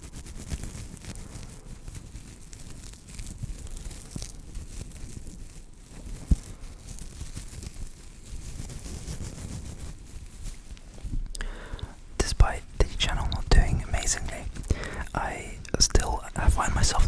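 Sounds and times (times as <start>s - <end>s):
paper tea bag crinkling: 0.0s - 17.0s.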